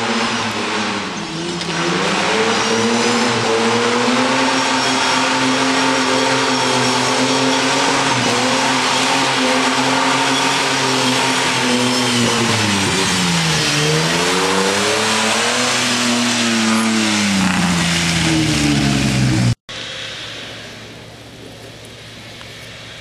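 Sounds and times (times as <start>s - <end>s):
engine revving hard: 0.0s - 19.6s
quiet steady engine noise: 19.2s - 23.0s.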